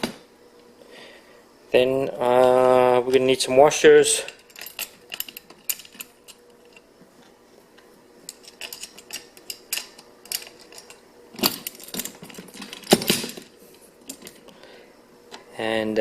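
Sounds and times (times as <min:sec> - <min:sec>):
metal washers and nuts clinking: 0:04.0 - 0:06.9, 0:08.3 - 0:14.4.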